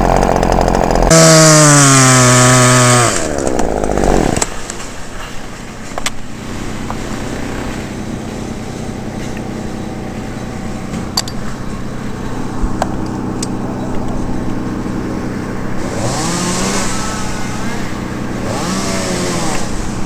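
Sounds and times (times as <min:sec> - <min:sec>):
chainsaw idling: 0:00.0 - 0:04.7, 0:06.4 - 0:20.0.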